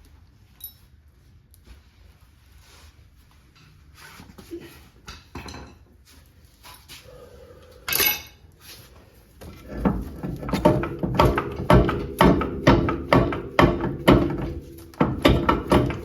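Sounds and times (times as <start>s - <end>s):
metal tools clanking: 7.9s - 8.4s
repeated metallic strikes: 9.8s - 16.0s.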